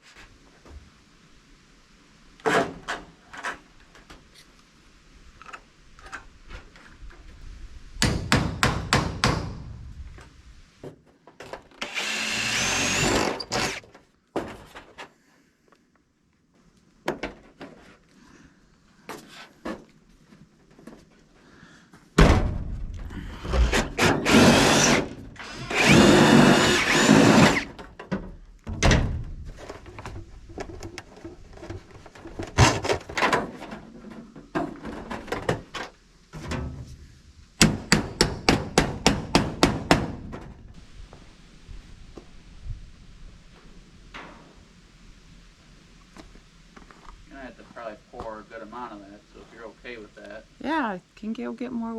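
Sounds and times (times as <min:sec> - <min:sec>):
knocks and clunks: 0:22.2 - 0:25.3, 0:27.3 - 0:37.0.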